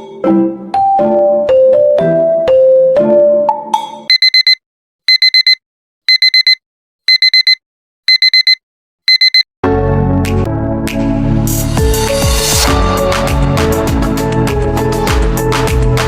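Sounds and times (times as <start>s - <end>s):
soft music: 0.0s - 3.8s, 9.6s - 16.0s
digital alarm beeping: 4.1s - 9.5s
electronic music: 9.7s - 16.0s.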